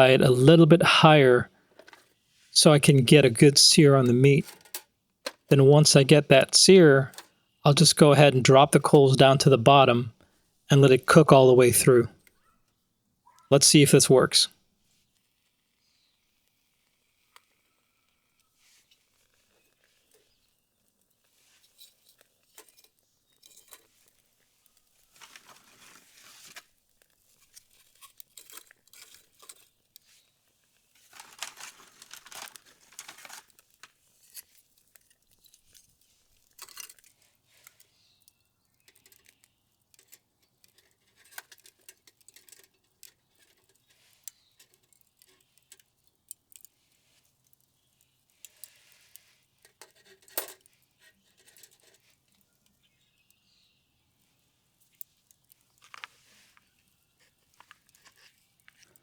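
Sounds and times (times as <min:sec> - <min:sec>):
charcoal rustling and crackling: 0:03.1 - 0:05.5, 0:14.8 - 0:59.0.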